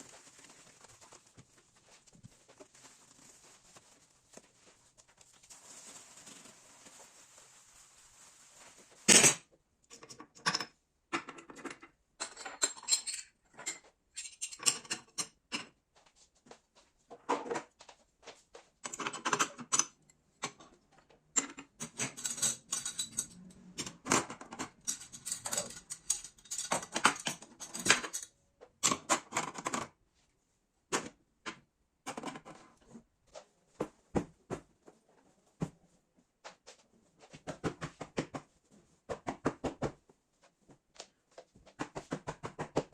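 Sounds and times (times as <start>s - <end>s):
dishes clinking and clattering: 9.1s - 15.8s, 21.4s - 28.3s.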